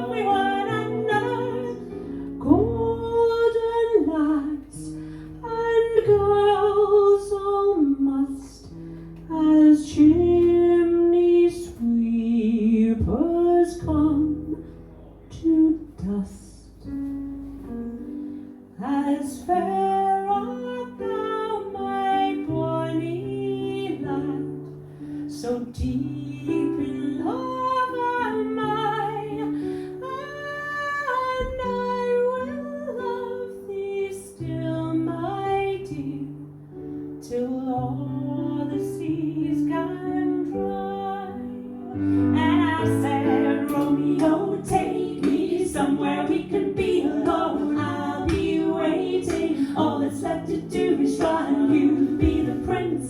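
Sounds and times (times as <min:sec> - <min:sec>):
woman singing: 0:00.0 - 0:14.6, 0:15.3 - 0:16.9, 0:18.8 - 0:36.6, 0:37.2 - 0:53.0
layered vocal parts: 0:42.8 - 0:53.0.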